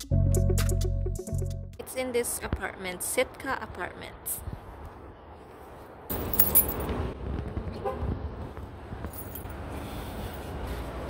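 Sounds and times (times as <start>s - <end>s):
light metallic jingle: 6.1s - 6.9s, 9.1s - 9.5s.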